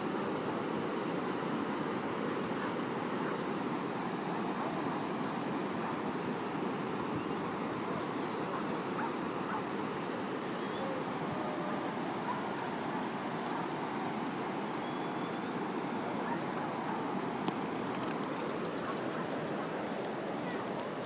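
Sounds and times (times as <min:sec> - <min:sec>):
faint dog barks and yips: 0:08.0 - 0:09.8, 0:10.6 - 0:13.8, 0:16.2 - 0:17.5.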